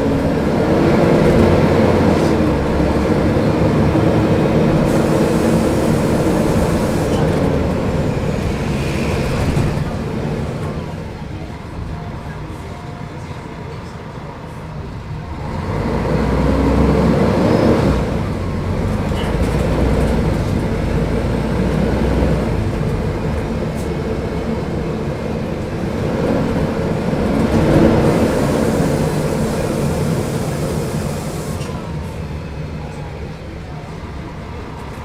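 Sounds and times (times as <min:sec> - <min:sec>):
bus diesel engine running: 0:00.0 - 0:35.0.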